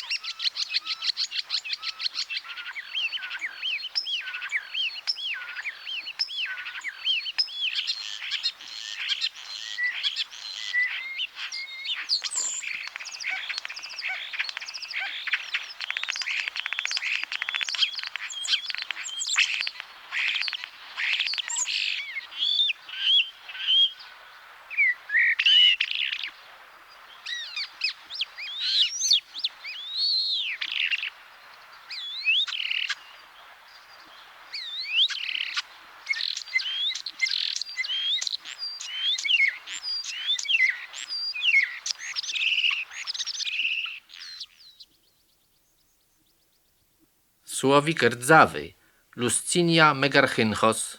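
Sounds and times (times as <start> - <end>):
starling singing: 47.5 - 50.9.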